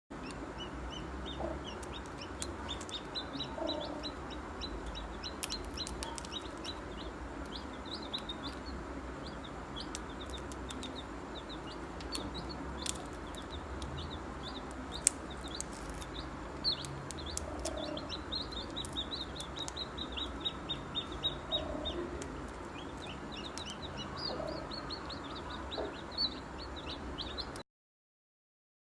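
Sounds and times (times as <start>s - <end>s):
small birds chirping: 0.2s - 27.6s.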